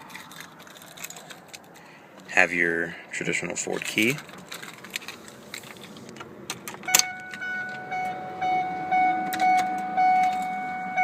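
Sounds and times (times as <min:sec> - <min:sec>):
pulsing dashboard warning chime: 0:06.9 - 0:11.0.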